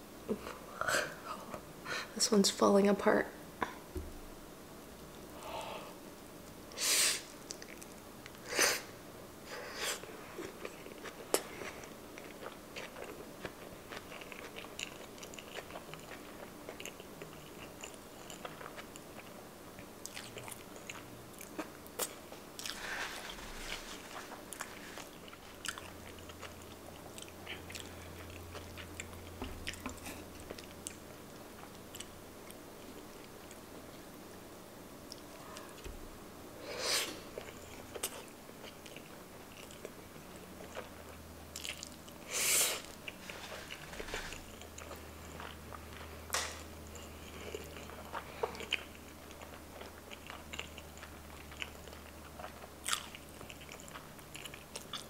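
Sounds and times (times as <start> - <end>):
wet chewing mouth sounds: 10.0 - 33.6, 40.6 - 42.2, 46.8 - 55.0.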